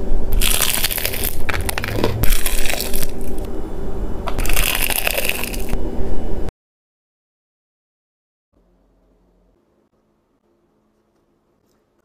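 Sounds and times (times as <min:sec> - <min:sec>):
crispy food crunching: 0:00.4 - 0:03.5, 0:04.3 - 0:05.8.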